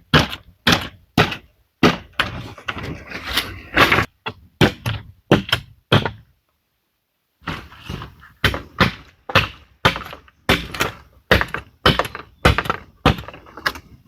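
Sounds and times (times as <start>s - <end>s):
hand tool striking wood: 7.4s - 13.8s.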